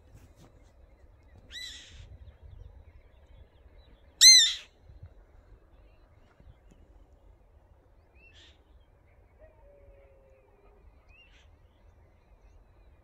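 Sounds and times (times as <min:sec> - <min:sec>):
bird calling: 0:04.2 - 0:04.7.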